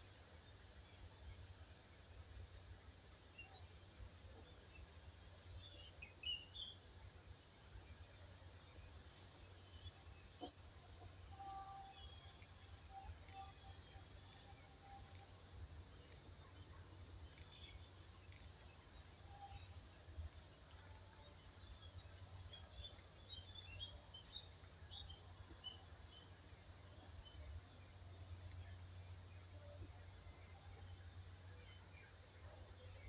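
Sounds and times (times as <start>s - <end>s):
high insect drone: 0.0s - 33.0s.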